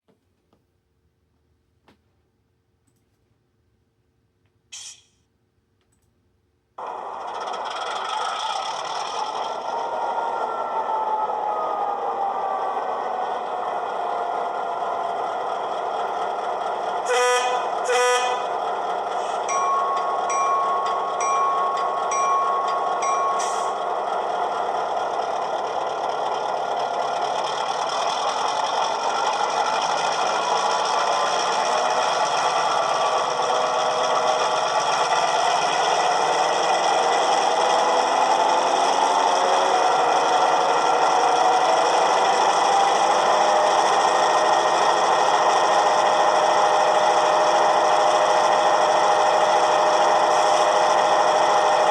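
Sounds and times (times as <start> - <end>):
diesel engine idling and revving: 6.8 - 51.9
locomotive bell ringing: 17.1 - 26.8.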